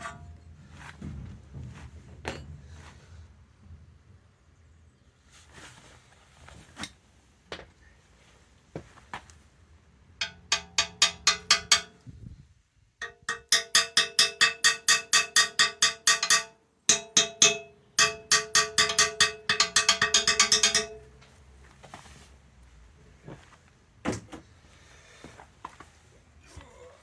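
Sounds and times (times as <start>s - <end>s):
hammer striking steel: 0.0s - 0.3s, 10.2s - 12.0s, 13.0s - 21.1s.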